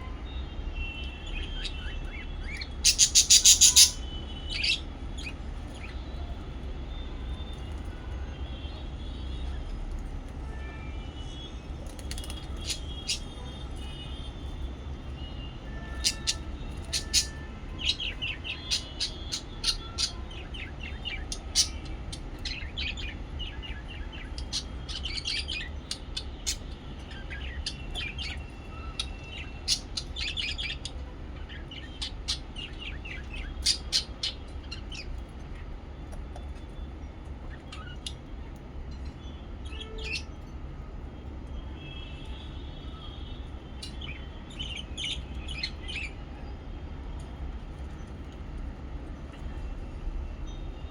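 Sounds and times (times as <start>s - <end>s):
lovebirds chirping: 0.9s - 6.3s, 12.0s - 14.2s, 15.2s - 40.5s, 41.7s - 46.2s.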